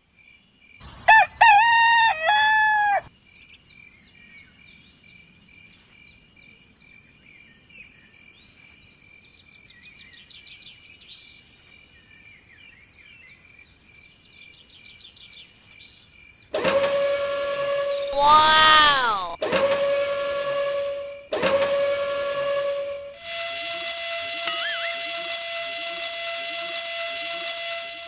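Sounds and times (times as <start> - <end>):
rooster crowing: 1.0 - 3.1, 18.1 - 19.4.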